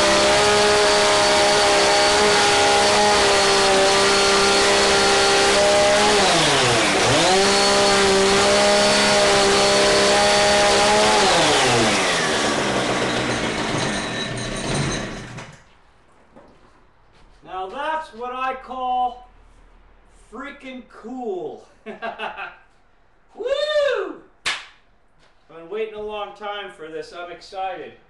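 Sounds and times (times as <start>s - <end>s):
chainsaw cutting: 0.0s - 15.6s.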